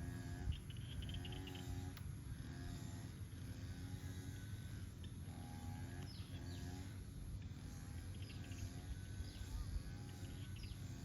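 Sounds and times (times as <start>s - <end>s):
bird chirps: 0.5s - 1.7s, 8.0s - 11.0s.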